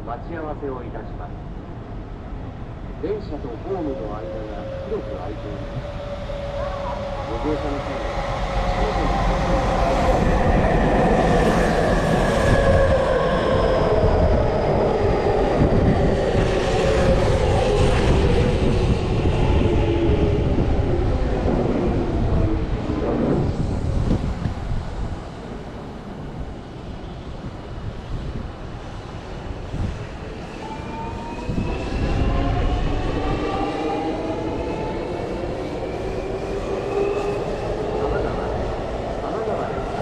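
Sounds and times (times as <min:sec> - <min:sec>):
rail and wheel rumble: 0:00.0 - 0:40.0
train braking: 0:03.7 - 0:10.3.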